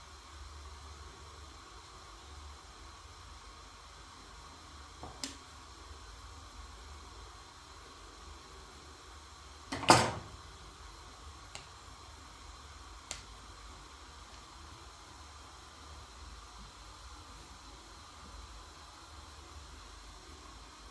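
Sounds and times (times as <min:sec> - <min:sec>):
object knocking when set down: 0:09.7 - 0:10.4.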